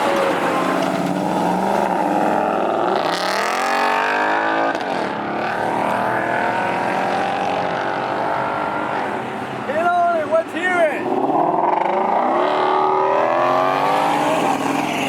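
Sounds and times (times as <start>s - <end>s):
car engine accelerating: 0.0s - 9.2s, 11.1s - 15.0s.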